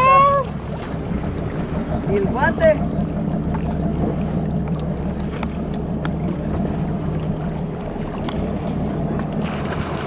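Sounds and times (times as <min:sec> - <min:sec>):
boat motor humming: 0:00.0 - 0:10.0
light ticks of water: 0:03.0 - 0:09.5.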